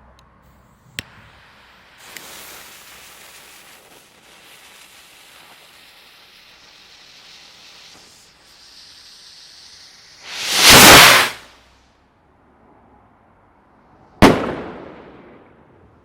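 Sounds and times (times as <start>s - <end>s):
firework fuse hissing: 0.5s - 11.7s.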